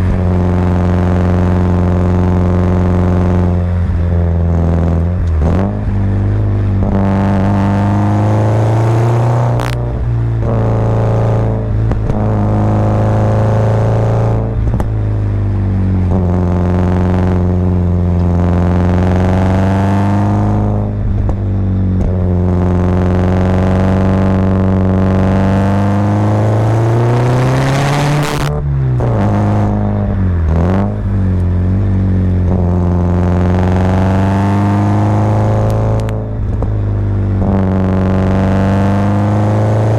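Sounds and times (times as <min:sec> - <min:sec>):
car engine revving through gears: 0:00.0 - 0:39.9.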